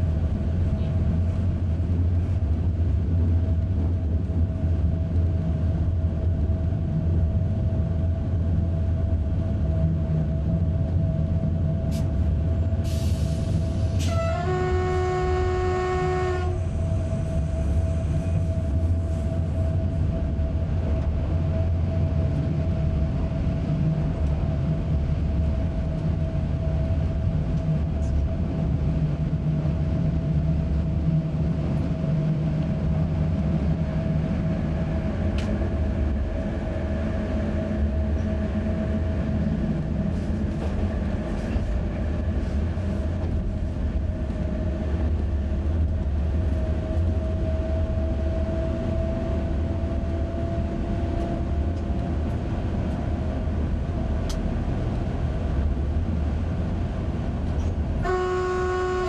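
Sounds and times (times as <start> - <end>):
train rumble: 0.0 - 59.0
train whine: 0.0 - 59.0
train horn blast: 13.9 - 16.9, 58.0 - 59.0.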